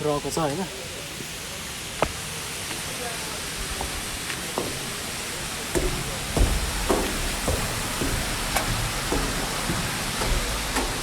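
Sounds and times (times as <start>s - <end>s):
waterfall splashing: 0.1s - 11.0s
soft knocks and thumps: 5.8s - 11.0s.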